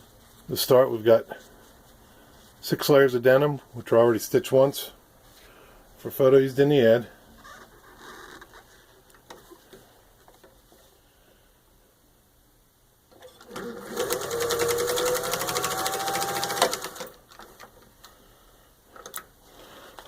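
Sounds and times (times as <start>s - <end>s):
sewing machine stitching: 13.2s - 17.2s.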